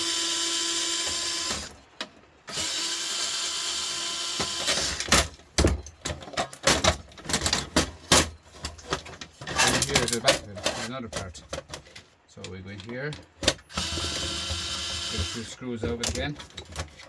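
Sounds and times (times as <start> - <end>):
cordless drill running: 0.0 - 1.7, 2.5 - 5.0, 13.7 - 15.5
metal parts clicking and knocking: 4.4 - 17.0.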